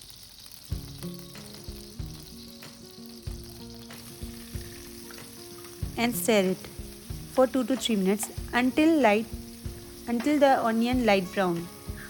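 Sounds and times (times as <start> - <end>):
onions sizzling in a pan: 0.0 - 12.0
soft background music: 0.7 - 12.0.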